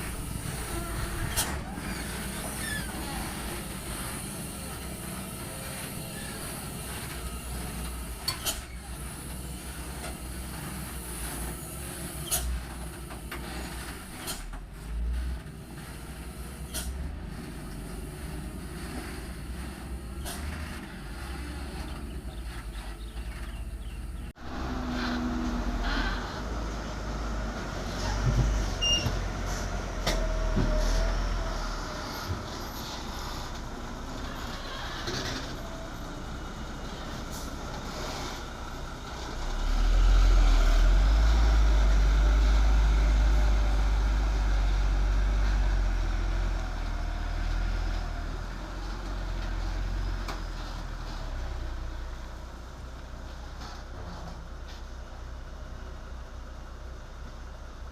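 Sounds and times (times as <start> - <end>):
diesel truck engine running: 0.0 - 57.9
knocks and clanks from truck load: 28.1 - 31.1.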